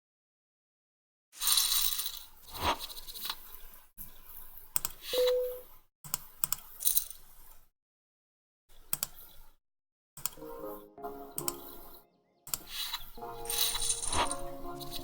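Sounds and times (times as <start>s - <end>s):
short beep: 5.2s - 5.7s
poker chips clinking: 13.5s - 14.4s.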